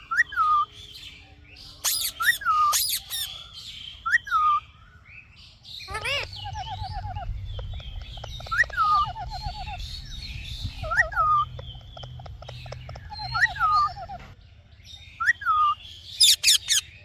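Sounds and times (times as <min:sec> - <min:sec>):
parrot calling: 0:01.8 - 0:04.6, 0:05.8 - 0:10.0, 0:10.7 - 0:14.4, 0:15.2 - 0:16.9.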